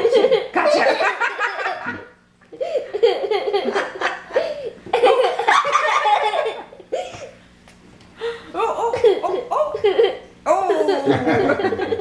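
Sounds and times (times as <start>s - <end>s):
faint steady hum: 0.0s - 12.0s
people laughing: 0.2s - 2.2s, 10.7s - 12.0s.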